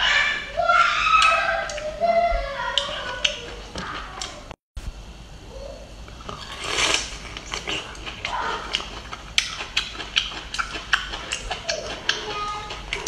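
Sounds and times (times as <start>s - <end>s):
crunchy chewing: 6.2s - 13.0s
wet mouth noise: 6.2s - 13.0s.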